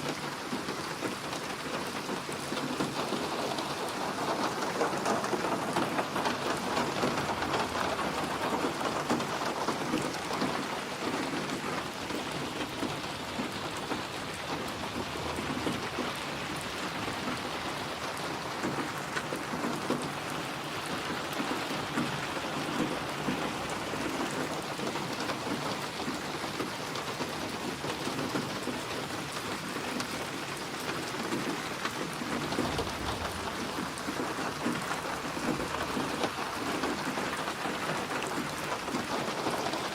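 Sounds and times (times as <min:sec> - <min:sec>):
rain falling: 0:00.0 - 0:39.9
thunder rumbling: 0:32.2 - 0:37.3.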